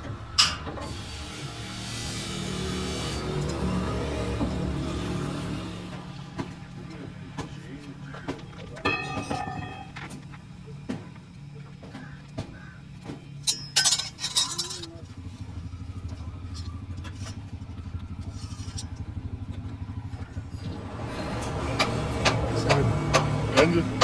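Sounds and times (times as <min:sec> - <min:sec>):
workshop machinery humming: 0:00.0 - 0:24.0
loud metal clattering: 0:08.8 - 0:10.0
ringing metal: 0:08.8 - 0:10.0, 0:13.4 - 0:15.0.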